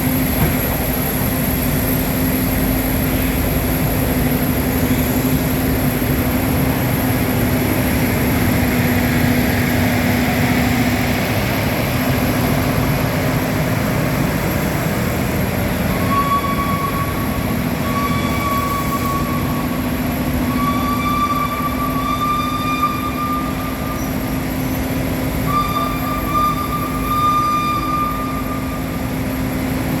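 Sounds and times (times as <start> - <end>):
high squealing tone: 15.8 - 24.2, 25.4 - 28.8.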